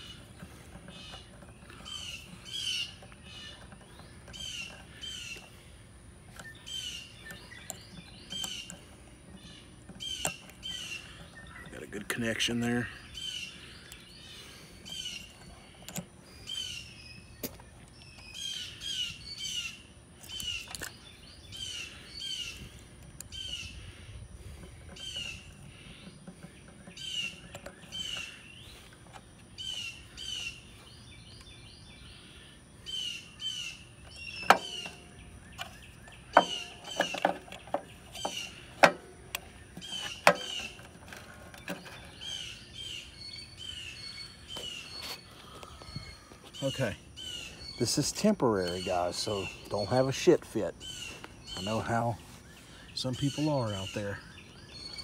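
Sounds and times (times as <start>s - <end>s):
small birds chirping: 0.0s - 55.0s
sharp clicks and knocks: 34.1s - 42.2s.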